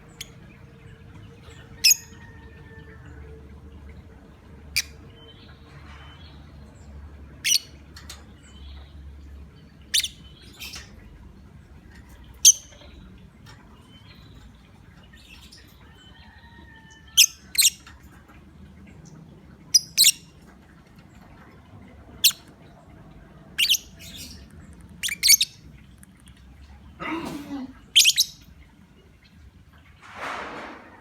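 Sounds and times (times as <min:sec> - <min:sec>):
bird high-pitched chirps: 0:07.4 - 0:07.8, 0:12.4 - 0:12.9, 0:17.2 - 0:17.8, 0:19.8 - 0:20.3, 0:23.6 - 0:25.6, 0:27.9 - 0:28.5.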